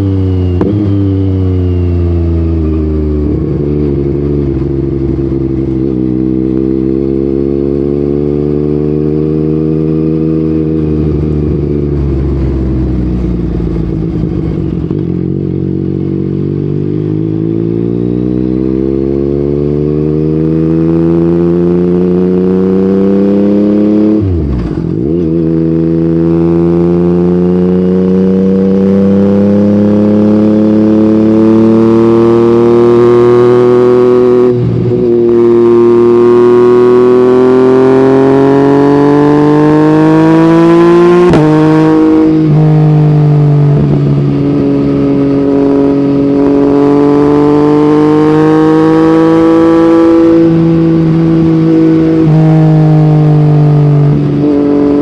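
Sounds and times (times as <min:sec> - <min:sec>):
motorcycle engine under load: 0:00.0 - 0:55.0.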